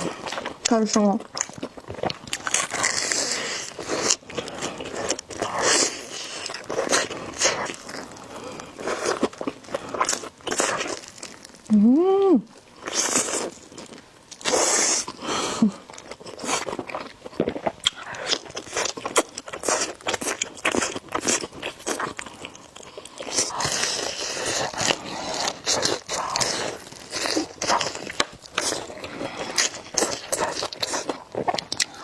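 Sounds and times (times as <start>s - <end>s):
wet chewing: 0.0s - 11.7s, 12.5s - 32.0s
person humming: 11.7s - 12.5s.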